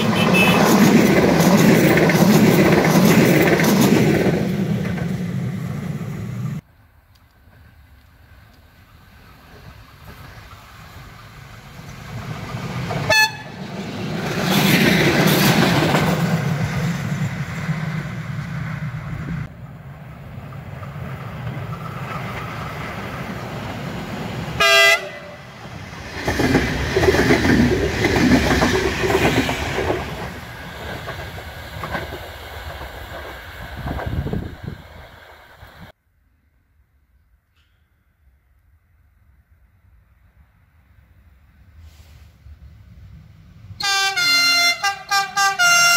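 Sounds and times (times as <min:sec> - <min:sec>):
train horn blast: 0:00.0 - 0:00.8, 0:13.1 - 0:13.6, 0:24.6 - 0:25.5, 0:43.8 - 0:45.9
train running noise: 0:00.0 - 0:36.0, 0:41.2 - 0:45.9.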